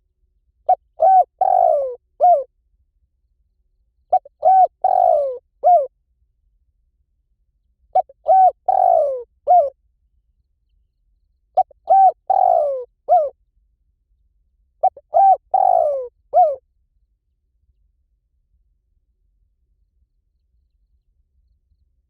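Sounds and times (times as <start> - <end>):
dove cooing: 0.7 - 2.5, 4.1 - 5.9, 8.0 - 9.8, 11.6 - 13.3, 14.8 - 16.6.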